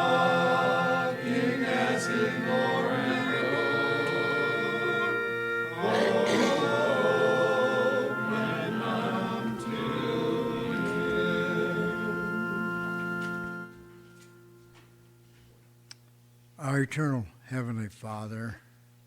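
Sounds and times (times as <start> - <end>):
congregation singing a hymn: 0.0 - 14.0
instrumental accompaniment: 0.0 - 15.5.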